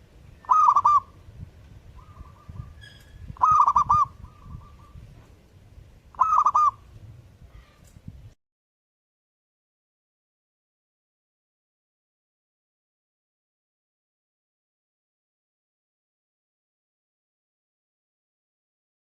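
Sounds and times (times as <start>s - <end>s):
dove cooing: 0.4s - 1.2s, 2.0s - 5.0s, 6.2s - 6.9s.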